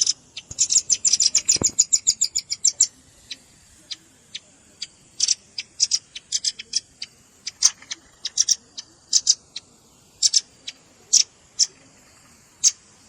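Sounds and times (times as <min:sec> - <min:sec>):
bird chipping calls: 0:00.0 - 0:13.0.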